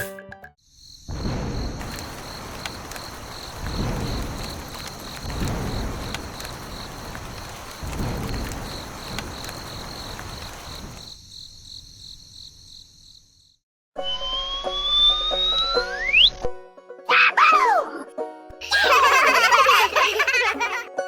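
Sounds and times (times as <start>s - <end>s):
insects chirping: 0.6s - 13.6s, 18.7s - 20.8s
low rumbles: 1.1s - 11.1s
steady hiss: 1.1s - 11.3s
slide-whistle glide: 14.0s - 16.5s.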